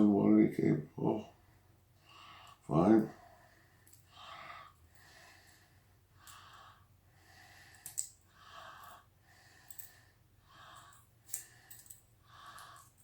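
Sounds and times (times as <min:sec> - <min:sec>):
man breathing: 0:01.3 - 0:13.0.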